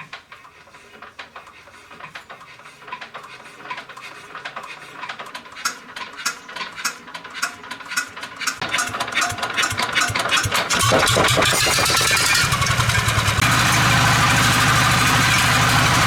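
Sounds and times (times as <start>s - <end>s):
rapid irregular clicking: 0.0s - 13.5s
diesel engine rumbling: 6.4s - 16.0s.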